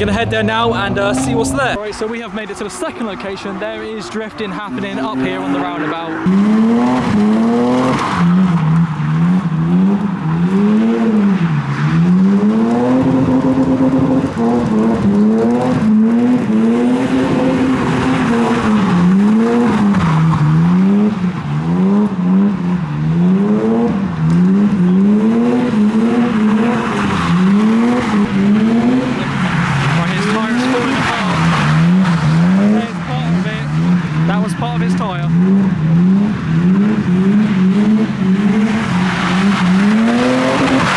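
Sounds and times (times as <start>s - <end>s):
tyres squealing and skidding: 0.0s - 13.8s, 24.5s - 40.9s
car engine revving: 0.0s - 40.9s.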